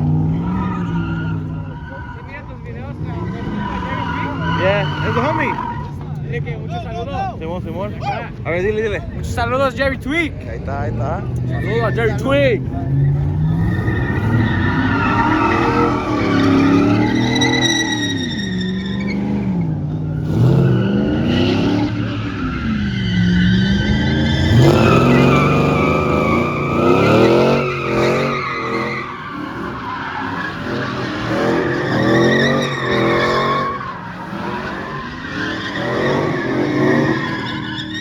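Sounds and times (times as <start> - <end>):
tires squealing: 0.0 - 38.0
truck engine revving: 10.6 - 38.0.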